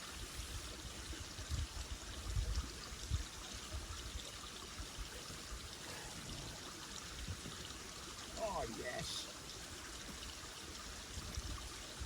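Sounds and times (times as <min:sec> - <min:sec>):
river water rushing: 0:05.1 - 0:12.0.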